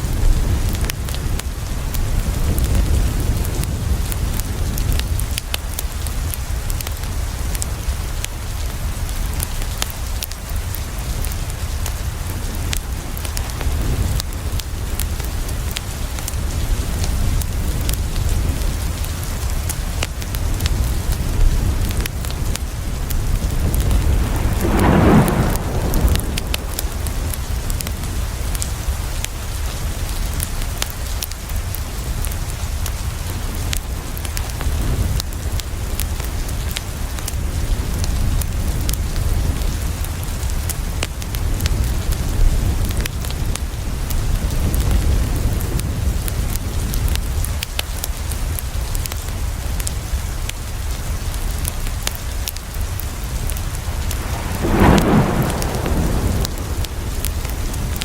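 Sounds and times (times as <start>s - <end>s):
heavy rain on a window: 0.0s - 58.0s
thunder: 20.7s - 29.2s, 53.0s - 58.0s.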